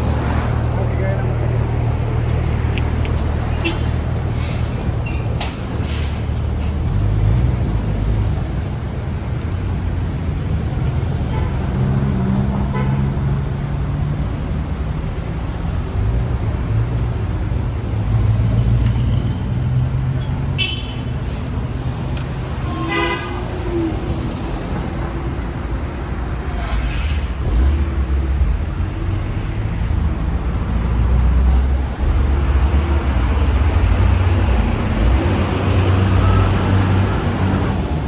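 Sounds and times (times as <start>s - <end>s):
traffic rumbling past: 0.0s - 38.0s
car horn tooting: 3.5s - 4.0s, 12.7s - 13.1s, 20.6s - 21.0s, 22.6s - 23.6s.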